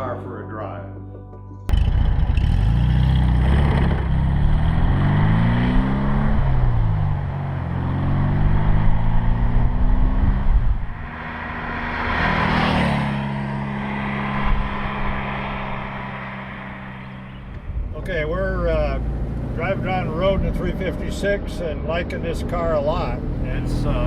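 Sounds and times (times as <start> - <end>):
car engine accelerating: 1.7 - 24.0
rush of noise: 8.6 - 18.8.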